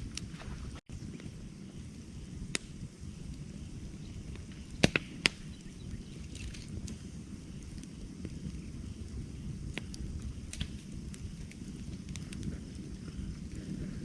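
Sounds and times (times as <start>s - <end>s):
fire crackling and popping: 0.0s - 14.0s
rush of flames: 0.0s - 14.0s.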